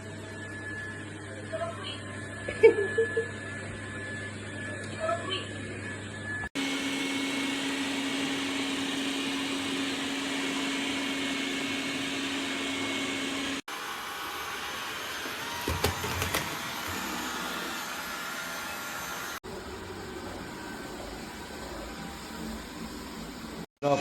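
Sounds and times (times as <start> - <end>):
robot vacuum whirring: 6.6 - 19.5.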